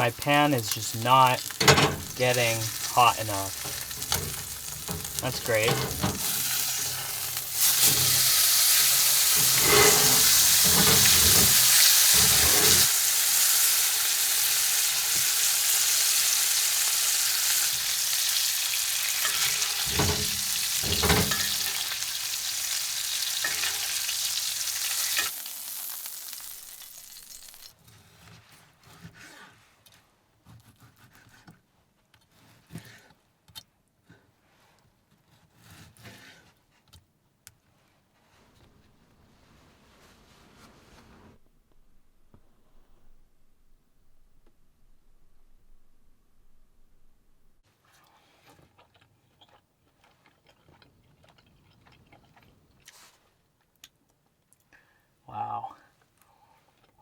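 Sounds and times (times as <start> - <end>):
steak sizzling in a pan: 0.0 - 27.7.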